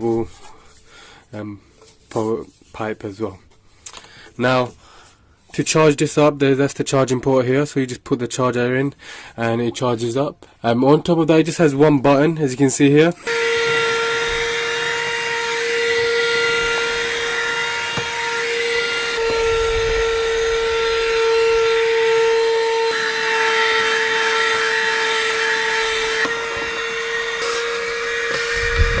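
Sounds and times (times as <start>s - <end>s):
vacuum cleaner motor whine: 13.2s - 29.0s.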